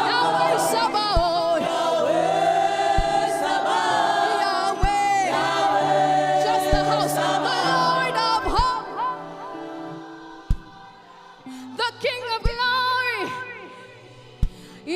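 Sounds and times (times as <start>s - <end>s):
voices singing long notes: 0.0s - 11.8s
sustained musical backing: 0.0s - 14.9s.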